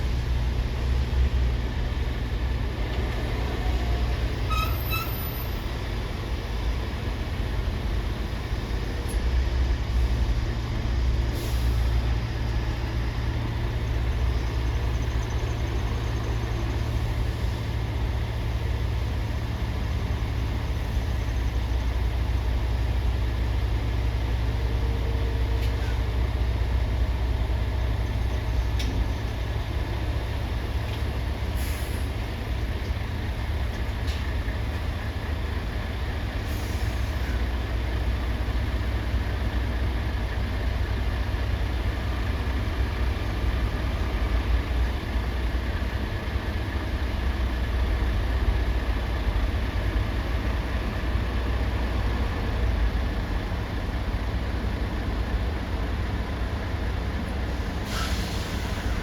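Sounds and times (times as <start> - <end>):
diesel trucks rumbling: 0.0 - 59.0
air brake hisses: 11.3 - 12.0, 31.6 - 32.2, 36.4 - 37.4, 57.6 - 59.0.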